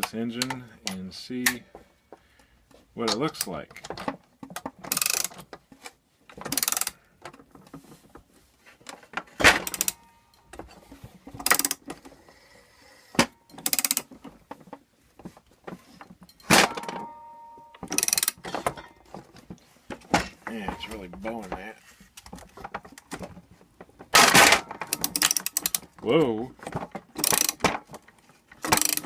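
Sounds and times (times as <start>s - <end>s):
wrench clicking: 4.9s - 5.3s, 6.5s - 7.0s, 9.7s - 10.0s, 11.4s - 11.8s, 13.5s - 14.1s, 17.9s - 18.4s, 24.9s - 25.8s, 27.2s - 27.6s, 28.7s - 29.0s.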